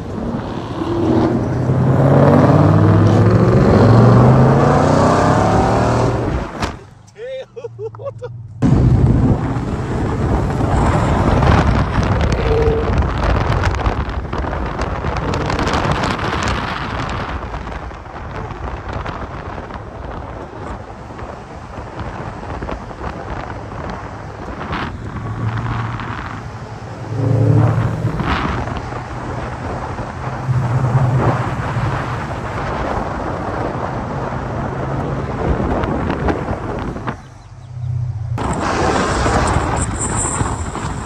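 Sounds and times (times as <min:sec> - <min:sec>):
car engine rumble: 0:00.0 - 0:41.0
wind buffeting microphone: 0:08.6 - 0:41.0.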